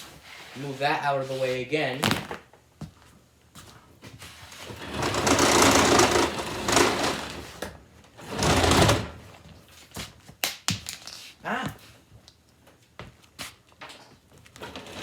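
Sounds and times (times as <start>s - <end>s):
table dragged across floor: 4.4s - 7.6s, 14.6s - 15.0s.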